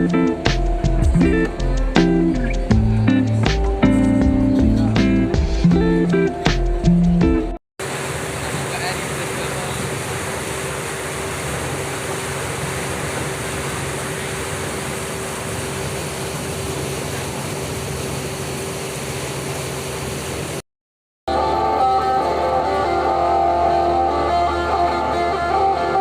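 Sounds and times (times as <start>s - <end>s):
steady mid-pitched tone: 0.0s - 7.6s.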